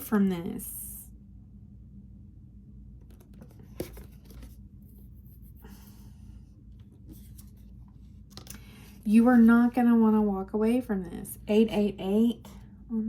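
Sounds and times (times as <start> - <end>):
low room hum: 0.0 - 13.0
cards rustling and clicking: 3.0 - 4.6, 6.8 - 8.9.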